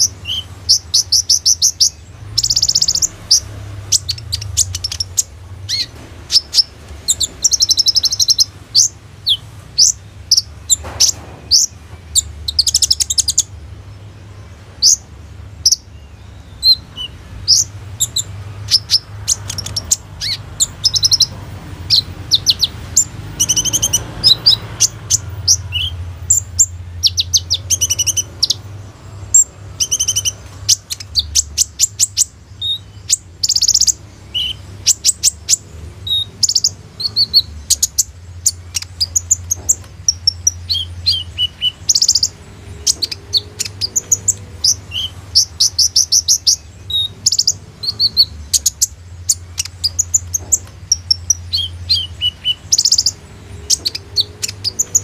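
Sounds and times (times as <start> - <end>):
bird singing chirps and trills: 0.0 - 55.0.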